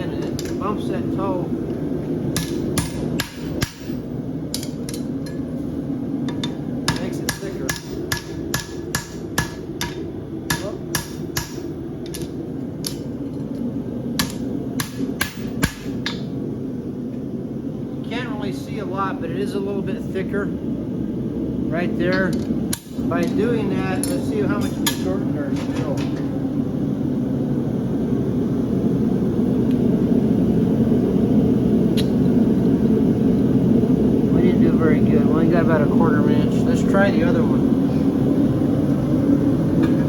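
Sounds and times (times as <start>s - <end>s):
steady low hum: 0.0s - 40.0s
hammer striking steel on anvil: 2.3s - 4.0s, 6.4s - 12.3s, 14.2s - 16.3s, 24.0s - 25.1s.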